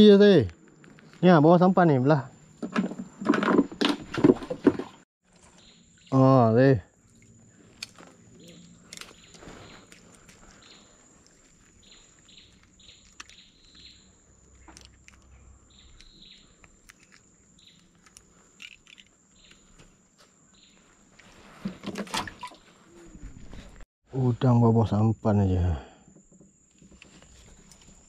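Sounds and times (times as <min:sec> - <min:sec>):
clicks and rustles of handling: 0:14.6 - 0:19.9.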